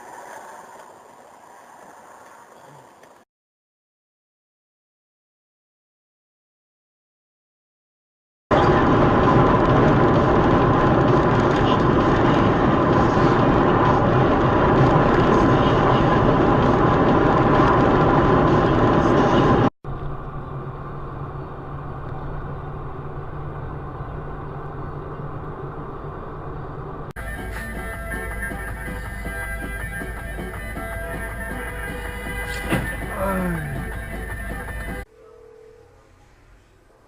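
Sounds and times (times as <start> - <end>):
car road and engine noise: 0.0 - 3.3, 8.5 - 36.0
dull hum: 8.5 - 37.0.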